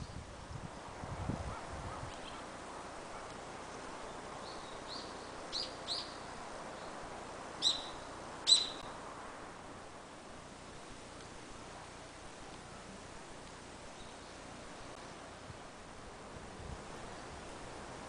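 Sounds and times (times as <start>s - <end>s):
faint background hiss: 0.0s - 18.0s
bird chirping: 3.7s - 7.0s, 7.6s - 9.0s.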